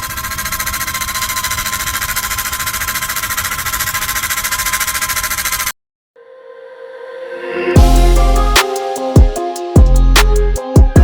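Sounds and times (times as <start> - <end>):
small electric motor buzzing: 0.0 - 5.7.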